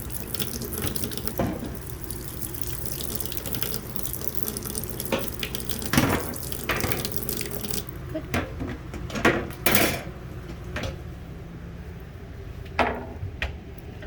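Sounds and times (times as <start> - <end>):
water running from a tap: 0.0 - 8.2.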